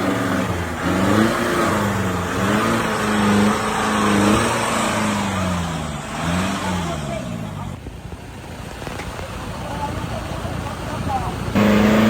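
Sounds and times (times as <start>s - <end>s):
engine revving: 0.0s - 7.8s, 11.4s - 12.0s.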